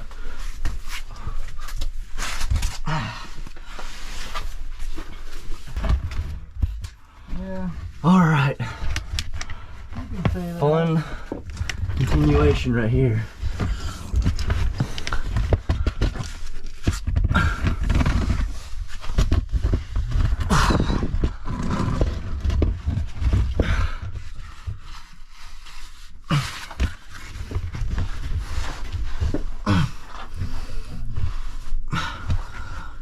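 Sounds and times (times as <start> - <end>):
heavy breathing: 0.0 - 5.9, 6.9 - 16.5, 23.2 - 33.0.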